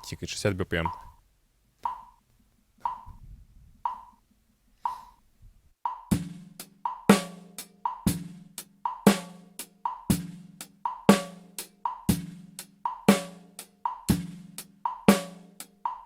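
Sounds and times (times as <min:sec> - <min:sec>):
drum kit playing a beat: 0:00.8 - 0:01.2, 0:01.8 - 0:02.2, 0:02.8 - 0:03.2, 0:03.9 - 0:04.2, 0:04.9 - 0:05.2, 0:05.9 - 0:16.0
metronome clicking: 0:00.8 - 0:01.2, 0:01.8 - 0:02.2, 0:02.8 - 0:03.2, 0:03.9 - 0:04.2.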